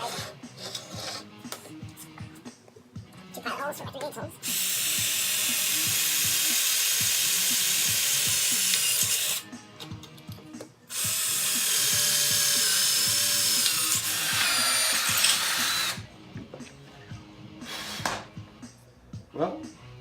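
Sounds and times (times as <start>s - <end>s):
electric drill boring into metal: 4.4s - 9.4s, 10.9s - 16.0s
drill bit squealing: 11.0s - 16.0s.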